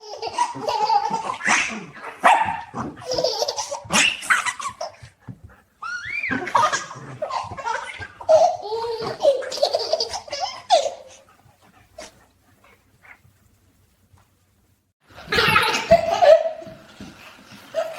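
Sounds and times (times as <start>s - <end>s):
baby laughing: 0.0s - 5.1s, 5.8s - 11.2s, 15.2s - 16.7s
puppy's voice: 0.4s - 3.2s.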